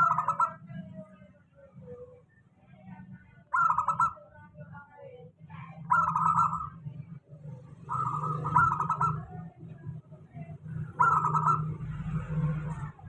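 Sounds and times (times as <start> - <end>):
dove cooing: 0.0 - 1.0, 3.5 - 4.3, 5.7 - 6.8, 7.8 - 9.5, 10.8 - 13.0.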